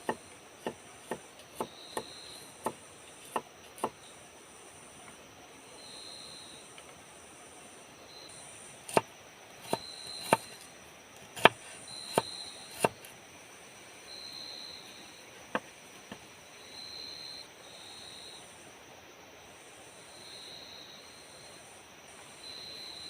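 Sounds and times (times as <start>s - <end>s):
insects buzzing: 0.0s - 23.0s
sharp knocks of wood chopping: 8.9s - 10.6s, 11.4s - 13.0s.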